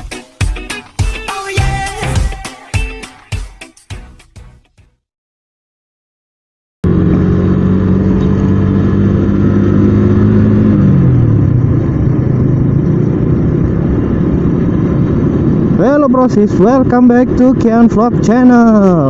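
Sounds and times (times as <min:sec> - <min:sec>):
motorcycle engine running: 0:06.8 - 0:19.0
road noise: 0:06.8 - 0:19.0.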